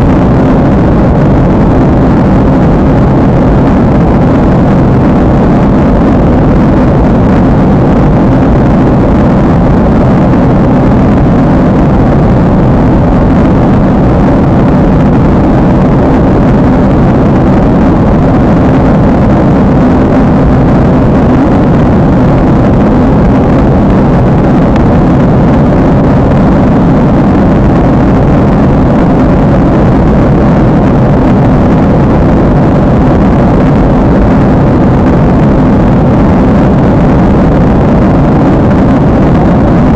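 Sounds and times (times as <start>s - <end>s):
airliner cabin roar: 0.0s - 39.9s.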